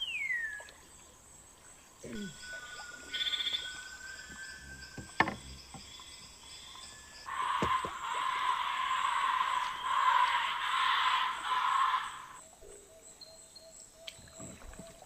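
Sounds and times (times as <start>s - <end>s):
high insect whine: 0.0s - 14.6s
frog calls: 2.0s - 13.1s.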